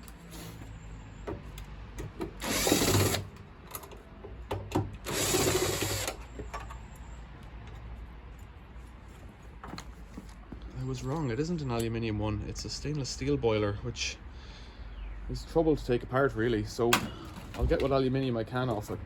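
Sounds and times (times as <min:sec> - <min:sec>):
power drill-driver running: 0:02.4 - 0:03.3, 0:05.0 - 0:06.2.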